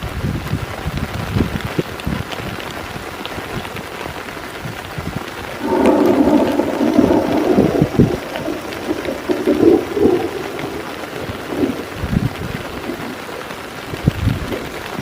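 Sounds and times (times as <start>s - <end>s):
heavy rain falling: 0.0s - 15.0s
low rumble of thunder: 5.6s - 13.3s.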